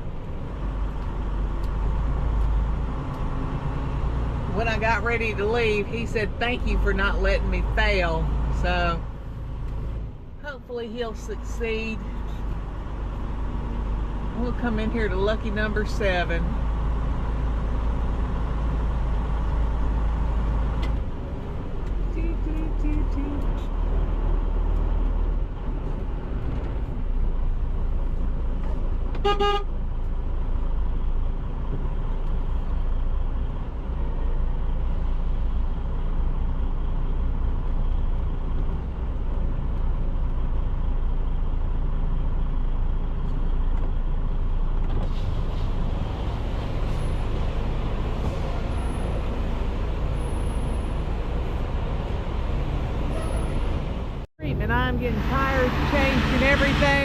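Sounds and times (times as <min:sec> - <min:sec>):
diesel truck engine running: 0:00.0 - 0:57.0
truck horn toot: 0:29.2 - 0:29.7.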